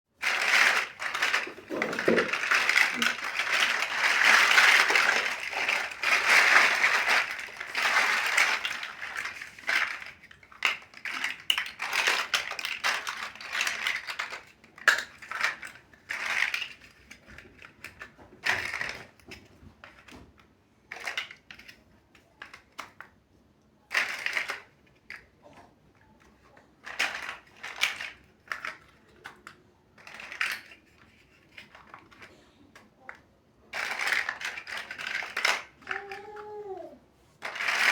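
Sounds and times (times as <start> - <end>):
plastic building bricks clattering: 0.2 - 37.9.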